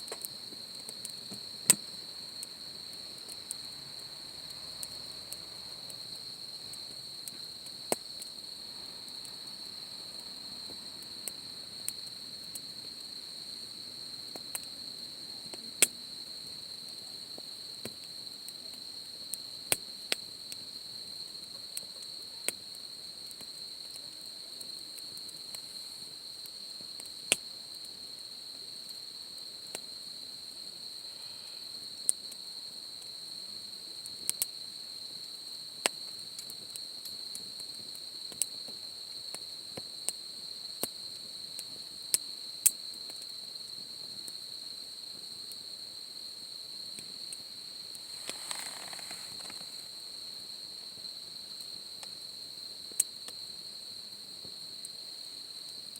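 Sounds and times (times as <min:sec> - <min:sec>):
campfire crackling and popping: 0:00.0 - 0:04.1, 0:05.9 - 0:09.8, 0:14.2 - 0:14.8, 0:15.4 - 0:25.7, 0:46.9 - 0:50.0
crickets trilling: 0:00.0 - 0:55.9.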